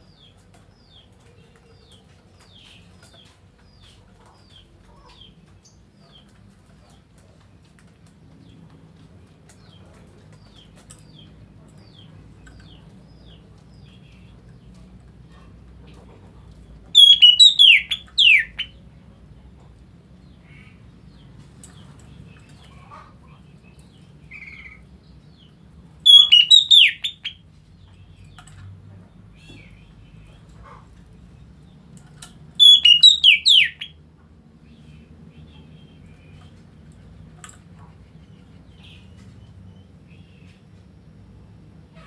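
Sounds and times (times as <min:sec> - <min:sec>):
bird calling with whistled notes: 0:17.0 - 0:18.8, 0:26.0 - 0:27.4, 0:32.6 - 0:34.0.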